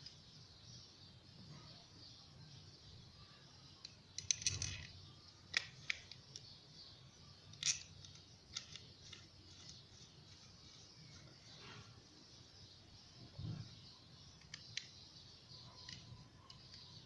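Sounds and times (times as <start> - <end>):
metallic lock clicks: 3.8 - 6.2.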